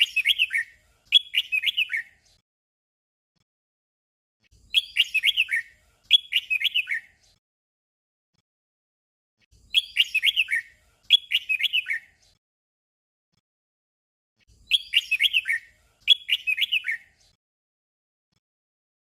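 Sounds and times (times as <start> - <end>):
bird song of falling whistled notes: 0.0 - 2.2, 4.7 - 7.2, 9.7 - 12.2, 14.6 - 17.2.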